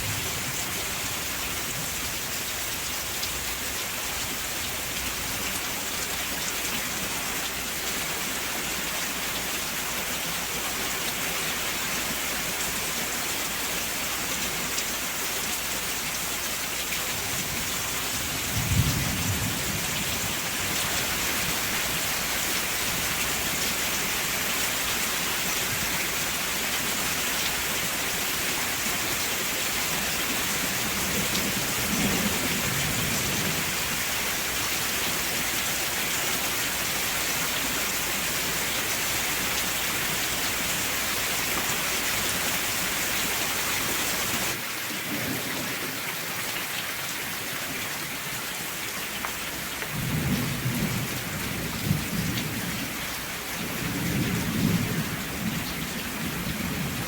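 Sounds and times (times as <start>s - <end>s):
heavy rain hissing: 0.0s - 46.0s
distant thunder rumbles: 18.2s - 20.4s, 53.6s - 57.0s.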